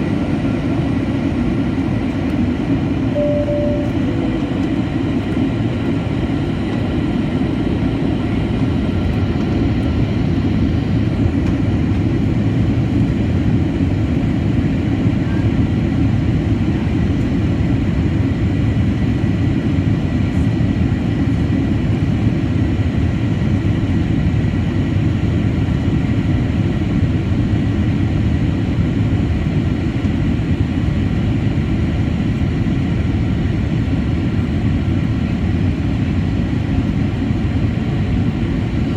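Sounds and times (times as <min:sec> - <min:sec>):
jet engine and airflow rumble: 0:00.0 - 0:38.9
faint high hum: 0:03.1 - 0:05.0.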